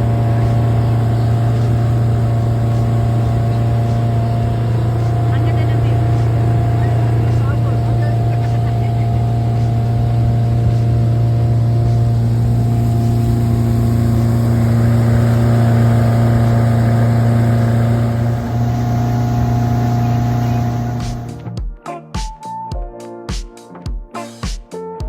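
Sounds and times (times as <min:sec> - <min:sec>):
music: 0:00.0 - 0:16.0, 0:18.0 - 0:25.0
motorboat engine running: 0:00.0 - 0:21.6.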